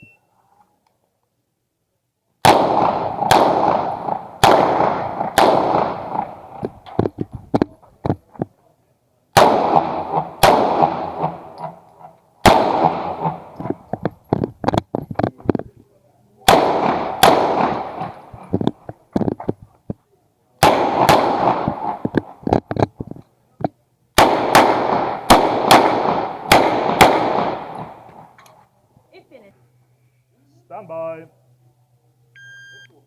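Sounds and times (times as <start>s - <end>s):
pistol shots echoing: 2.4s - 7.0s, 9.4s - 13.9s, 16.5s - 18.8s, 20.6s - 22.4s, 24.2s - 28.4s.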